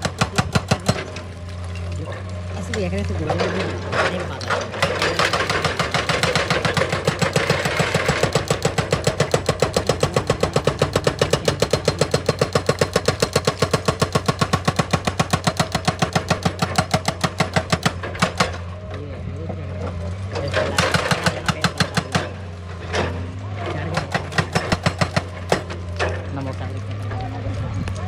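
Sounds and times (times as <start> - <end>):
hydraulic breaker hammering stone: 0.0 - 1.3, 3.2 - 18.8, 20.4 - 26.4
excavator engine hum: 0.0 - 28.0.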